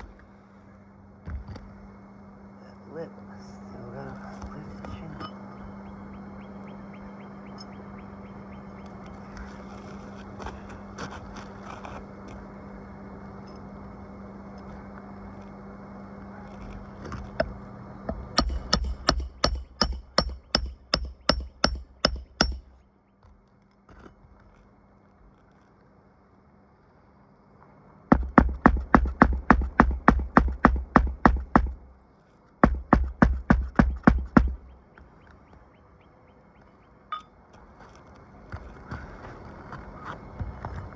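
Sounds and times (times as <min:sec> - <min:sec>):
steady low hum: 0:00.0 - 0:40.9
hammer striking roofing nails: 0:18.1 - 0:22.8, 0:28.1 - 0:31.8, 0:32.6 - 0:34.7.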